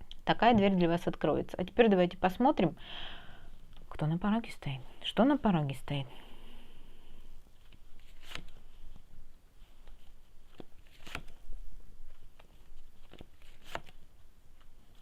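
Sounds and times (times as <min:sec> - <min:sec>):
cards being shuffled: 0:07.6 - 0:09.1, 0:09.7 - 0:15.0.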